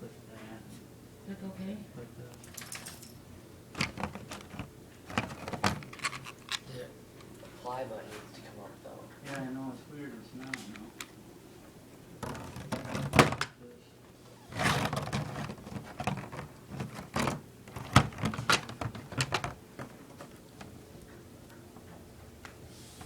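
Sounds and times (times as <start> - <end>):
hard objects knocking and clattering: 3.7 - 6.6, 12.2 - 13.5, 14.6 - 22.0.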